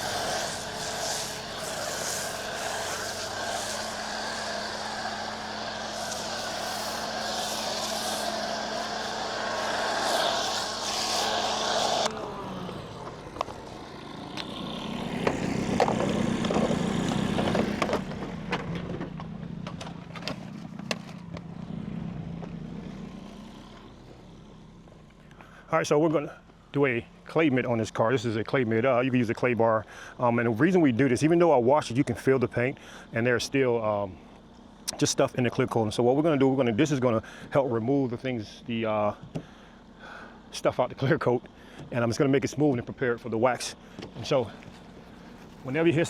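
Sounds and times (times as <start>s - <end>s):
pressure washer spraying: 0.0s - 12.1s.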